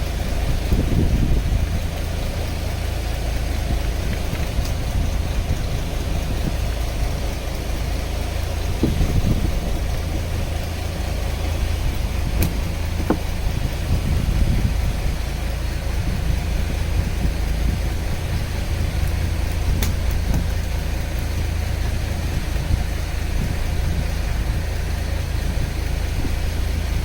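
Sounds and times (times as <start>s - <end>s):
boat engine idling: 0.0s - 27.0s
light knocks and clicks: 12.4s - 13.4s.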